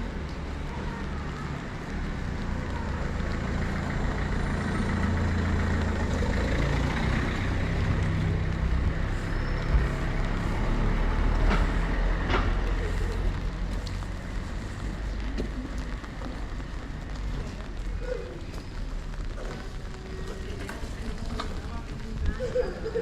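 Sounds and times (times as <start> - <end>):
heavy vehicle engine rumbling: 0.0 - 23.0
wet street noise: 0.0 - 23.0.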